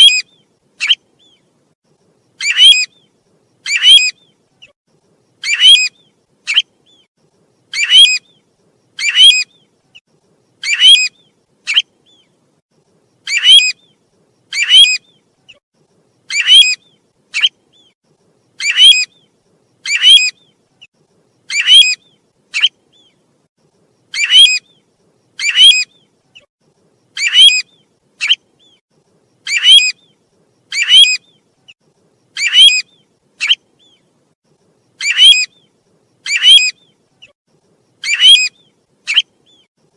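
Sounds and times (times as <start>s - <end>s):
bird calling rhythmically: 0.0s - 1.5s, 2.3s - 10.0s, 10.6s - 12.4s, 13.2s - 15.6s, 16.2s - 23.3s, 24.1s - 28.8s, 29.4s - 34.2s, 34.9s - 37.4s, 38.0s - 39.7s.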